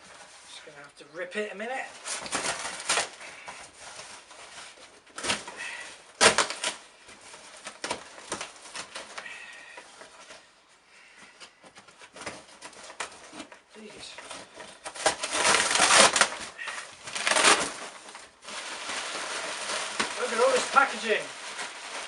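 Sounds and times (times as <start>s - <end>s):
cardboard box being ripped open: 6.2s - 6.8s, 14.8s - 18.2s.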